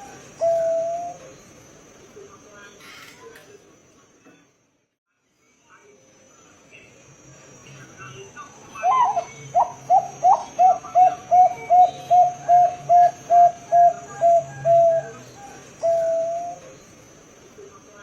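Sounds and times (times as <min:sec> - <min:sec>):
dove cooing: 0:00.0 - 0:01.3, 0:08.8 - 0:16.8.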